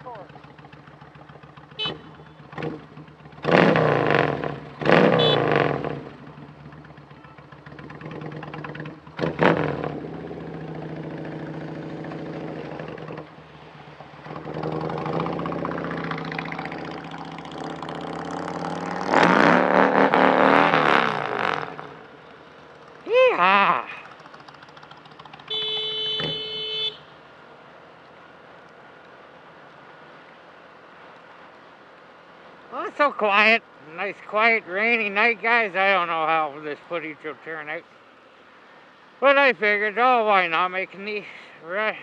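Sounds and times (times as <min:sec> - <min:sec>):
motorcycle engine revving: 0:00.0 - 0:27.2.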